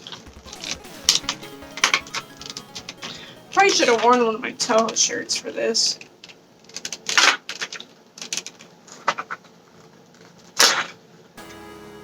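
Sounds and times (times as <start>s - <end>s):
background music: 0.0s - 6.5s, 11.4s - 12.0s
small plastic clicks and crinkling: 6.7s - 10.5s.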